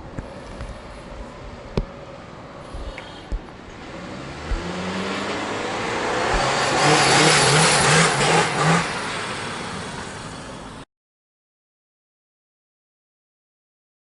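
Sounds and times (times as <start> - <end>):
car accelerating: 0.4 - 10.8.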